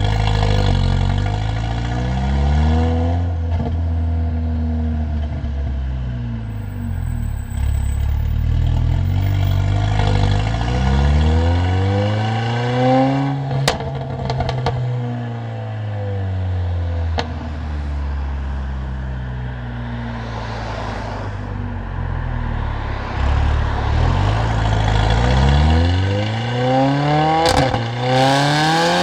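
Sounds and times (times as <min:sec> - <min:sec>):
car engine revving: 0:06.5 - 0:14.6, 0:21.8 - 0:29.0.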